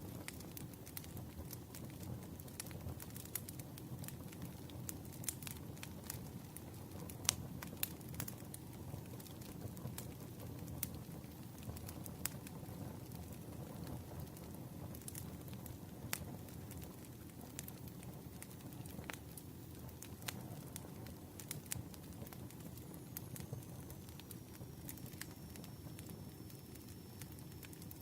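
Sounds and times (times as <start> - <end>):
campfire flames rushing: 0.0 - 28.0
fire crackling and popping: 0.0 - 28.0.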